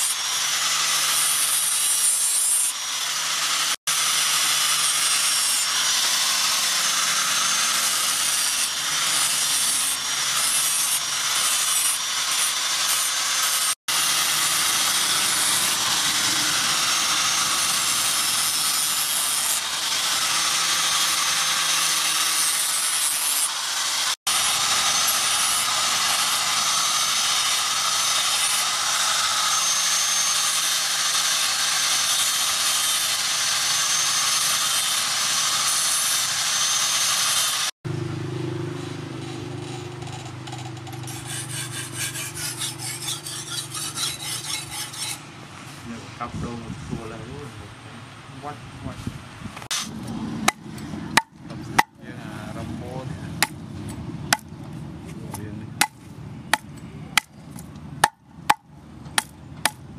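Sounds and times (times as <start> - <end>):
angle grinder grinding steel: 0.0 - 45.9, 49.6 - 53.6.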